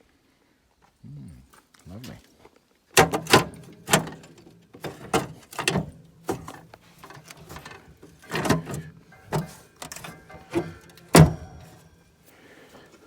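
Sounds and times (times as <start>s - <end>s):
cast-iron cooker parts clunking: 3.0s - 12.0s.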